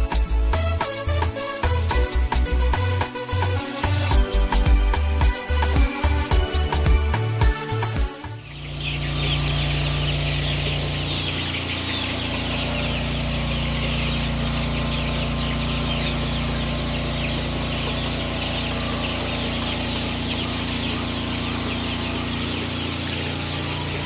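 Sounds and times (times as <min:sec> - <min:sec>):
chicks peeping and cheeping: 0:08.4 - 0:24.0
steady low hum: 0:08.4 - 0:24.0.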